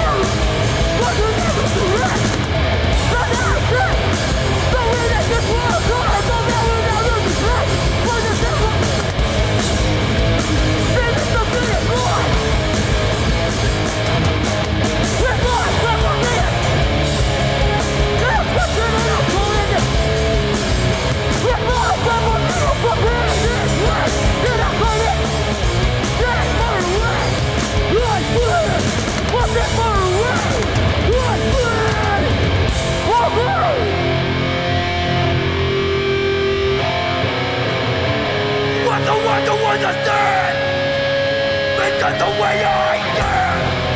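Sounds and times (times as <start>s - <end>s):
person singing: 0.0s - 9.2s, 10.4s - 12.6s, 15.0s - 34.4s, 38.7s - 40.9s, 41.6s - 43.9s
drums and cymbals: 0.0s - 33.7s
bass guitar: 0.0s - 43.9s
distorted electric guitars: 0.0s - 43.9s.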